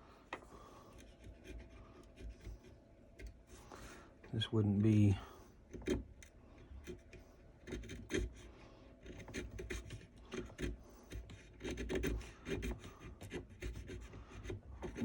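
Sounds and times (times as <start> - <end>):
chisel scraping wood: 5.6 - 15.0.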